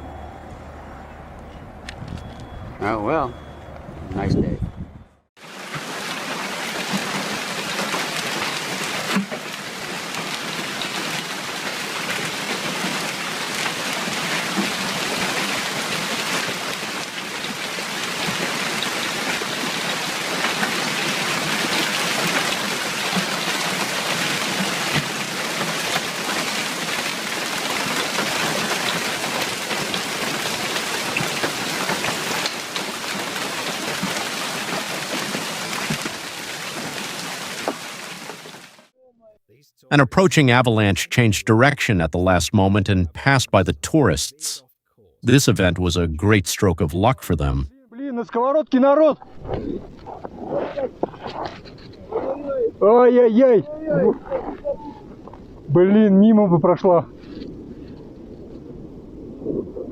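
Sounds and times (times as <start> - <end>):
heavy rain falling: 5.4 - 38.9.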